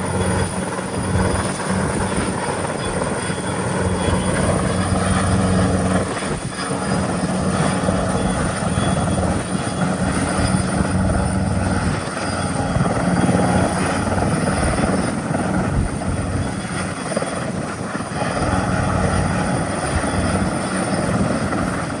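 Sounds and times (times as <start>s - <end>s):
helicopter rotor beating: 0.0s - 22.0s
high whine: 0.0s - 22.0s.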